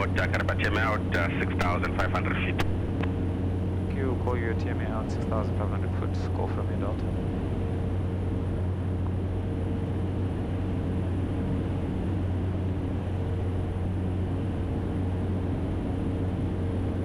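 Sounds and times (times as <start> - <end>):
air noise: 0.0 - 3.1
turboprop engine droning: 0.0 - 17.0.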